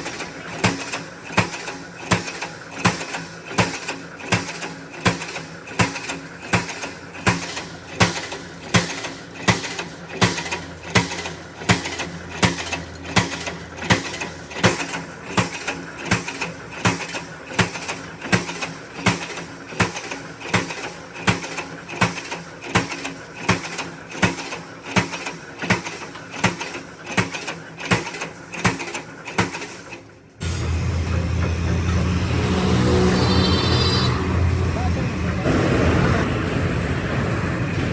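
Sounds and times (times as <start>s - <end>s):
hammer striking metal: 0.0s - 22.2s.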